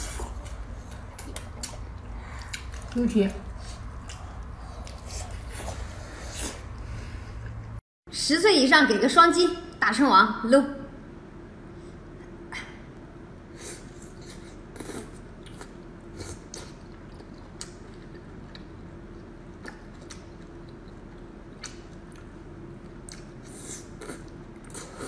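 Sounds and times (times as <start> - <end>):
faint steady hum: 0.0 - 25.0
person chewing fried food: 14.0 - 25.0.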